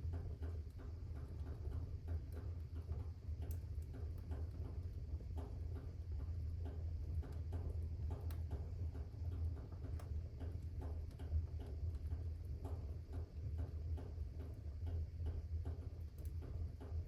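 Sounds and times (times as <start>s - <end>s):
fire crackling in a fireplace: 0.0s - 17.0s.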